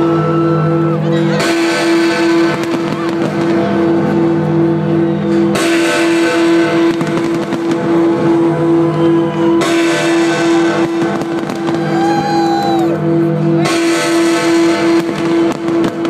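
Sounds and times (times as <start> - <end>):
fireworks bangs and crackle: 1.2 - 4.5, 5.1 - 13.0, 13.6 - 16.0
falling firework whistle: 10.5 - 13.0.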